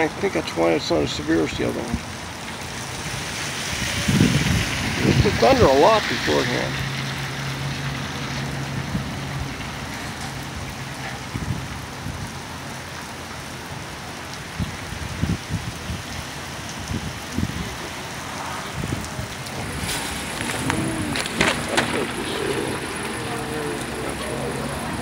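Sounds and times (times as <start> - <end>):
heavy rain on pavement: 0.0 - 25.0
low steady vehicle hum: 17.4 - 25.0.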